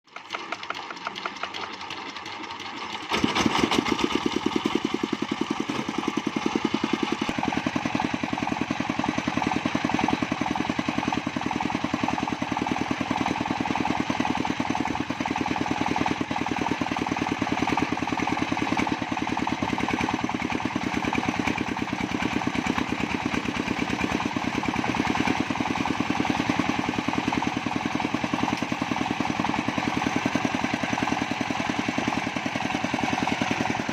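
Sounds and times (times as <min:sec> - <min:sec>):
sawmill engine running: 0:00.1 - 0:33.9.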